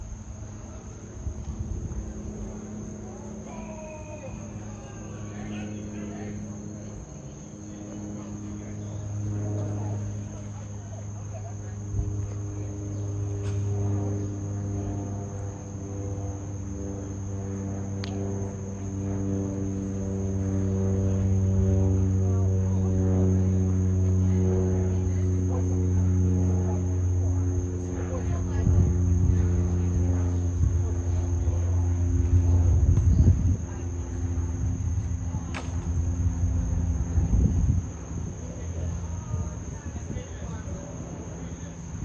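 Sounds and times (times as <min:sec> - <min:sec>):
high whine: 0:00.0 - 0:14.5
constant high-pitched tone: 0:00.0 - 0:42.0
turboprop propeller drone: 0:00.0 - 0:42.0.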